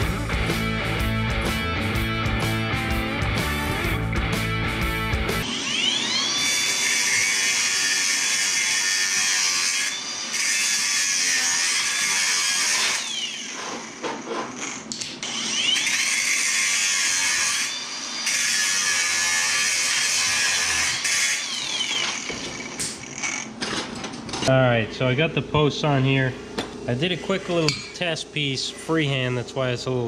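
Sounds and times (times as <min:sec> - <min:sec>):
power grinder grinding metal: 0:05.4 - 0:23.8.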